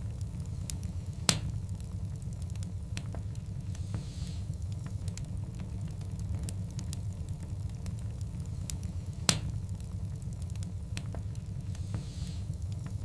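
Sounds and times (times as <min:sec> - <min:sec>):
wood fire burning in fireplace: 0:00.0 - 0:13.0.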